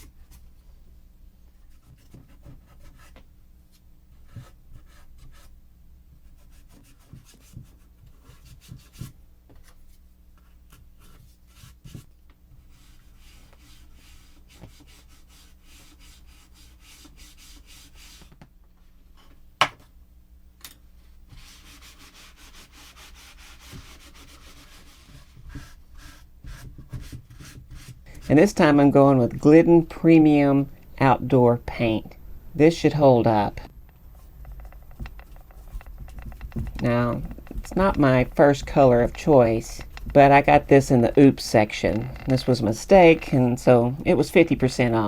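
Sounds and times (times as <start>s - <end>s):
scraping and rubbing wood: 33.3s - 45.0s.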